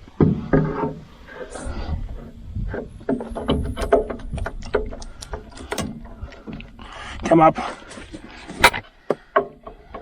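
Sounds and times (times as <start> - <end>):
metal clanks and squeaks: 0.2 - 6.7.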